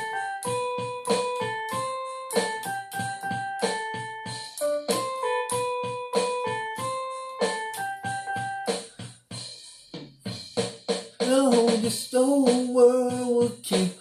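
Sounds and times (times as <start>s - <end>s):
piano melody over chords: 0.0s - 8.9s.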